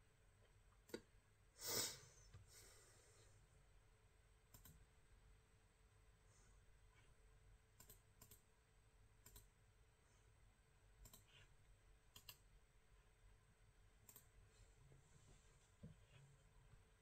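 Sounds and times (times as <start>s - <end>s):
faint sharp clicks: 4.5s - 4.8s, 14.0s - 14.3s.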